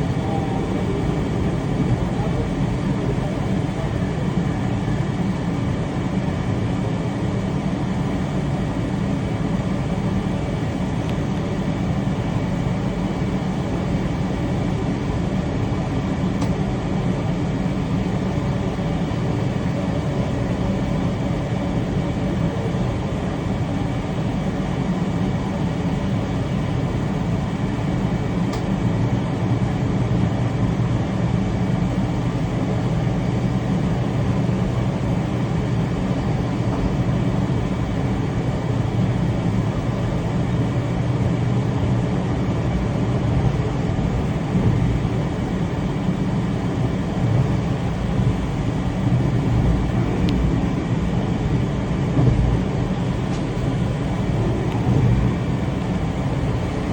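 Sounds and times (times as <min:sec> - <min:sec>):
train rumbling: 0:00.0 - 0:06.8, 0:31.5 - 0:56.9.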